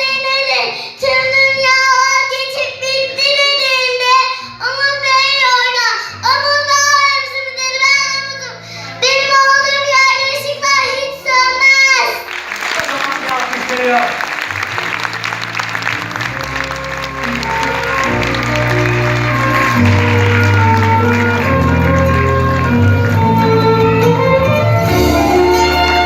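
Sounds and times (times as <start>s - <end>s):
instrumental backing music: 1.1s - 26.0s
audience applause: 12.2s - 23.6s.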